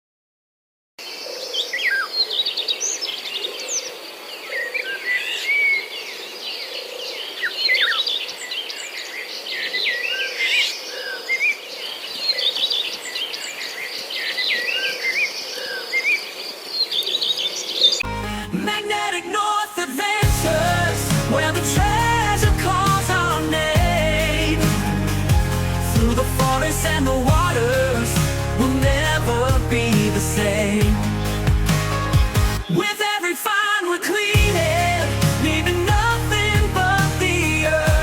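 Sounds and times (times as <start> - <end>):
birds chirping and whistling: 20.2 - 32.8.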